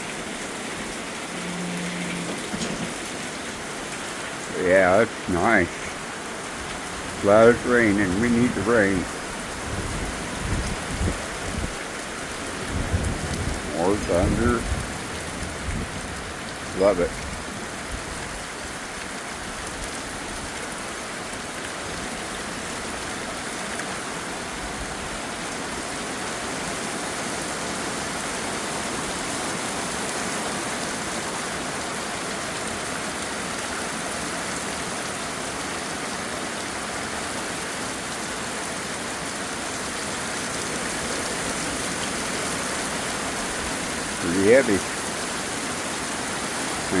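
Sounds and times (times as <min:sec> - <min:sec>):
heavy rain falling: 0:00.0 - 0:47.0.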